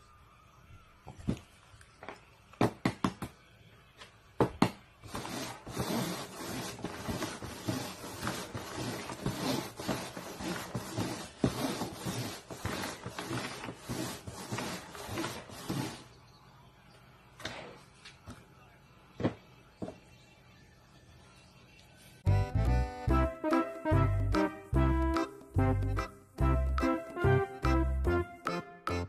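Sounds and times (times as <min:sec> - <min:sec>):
paper cups scraping on cardboard: 0:05.1 - 0:16.1.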